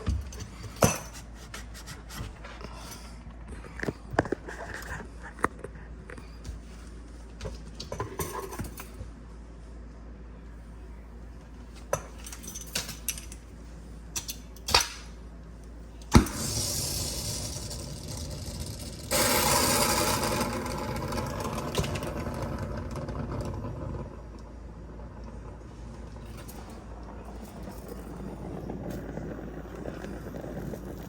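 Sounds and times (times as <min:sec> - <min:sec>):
pressurised gas rushing: 0:16.1 - 0:31.0.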